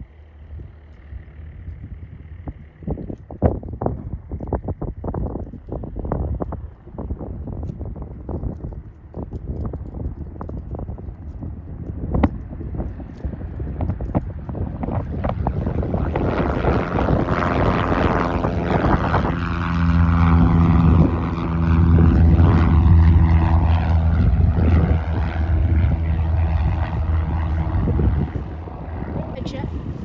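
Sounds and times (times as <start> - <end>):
light airplane engine passing: 0.0 - 30.0.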